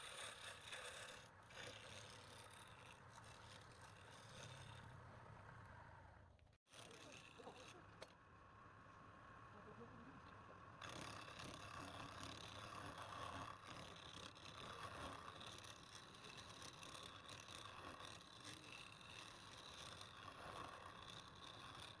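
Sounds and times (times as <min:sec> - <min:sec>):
wood lathe running: 0:00.0 - 0:04.8, 0:10.3 - 0:22.0.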